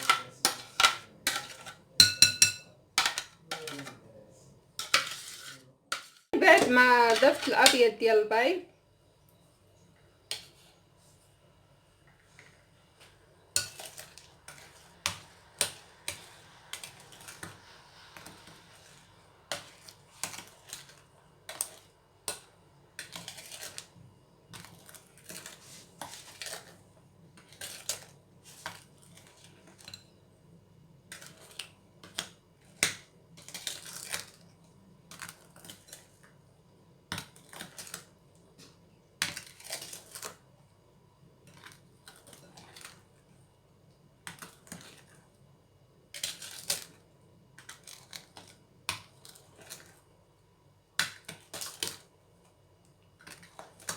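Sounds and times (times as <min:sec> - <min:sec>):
utensil scraping and knocking bowl: 0:00.0 - 0:04.0, 0:04.8 - 0:07.8.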